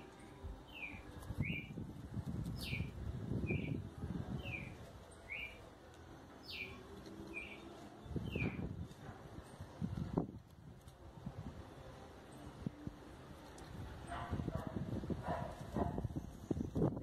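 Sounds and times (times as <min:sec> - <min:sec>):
low rustling noise: 0:00.0 - 0:17.0
small bird chirping: 0:00.7 - 0:01.7, 0:02.5 - 0:03.8, 0:04.4 - 0:05.6, 0:06.4 - 0:08.7.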